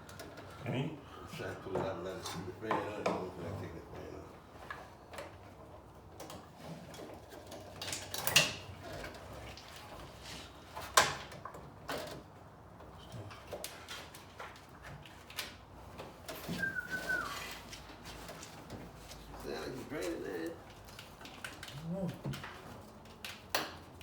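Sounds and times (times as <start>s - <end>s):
clicks and knocks of hand work: 4.5s - 19.4s, 20.0s - 24.0s
short falling squeak: 16.6s - 17.5s.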